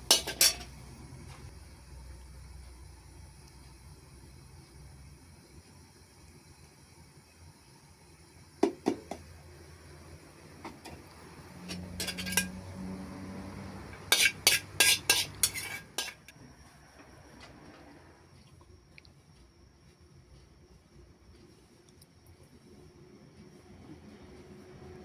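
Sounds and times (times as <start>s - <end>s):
metal utensils clinking on dishes: 0.0s - 0.7s, 11.6s - 12.6s, 14.0s - 16.3s.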